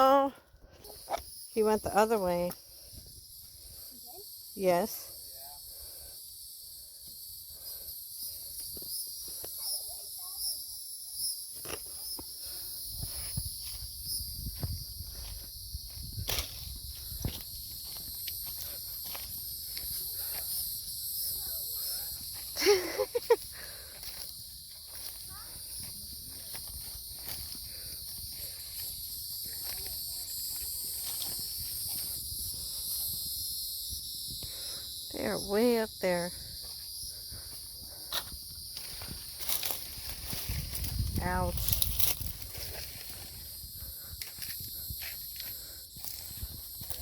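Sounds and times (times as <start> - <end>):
footsteps on woodland trail: 0.0 - 47.0
high-pitched insect chorus: 0.0 - 47.0.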